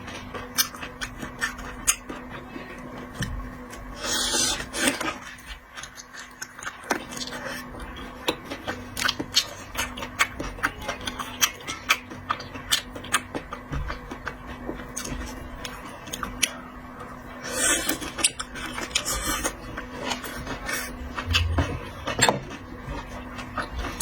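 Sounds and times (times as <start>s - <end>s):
faint steady hum: 20.7s - 24.0s.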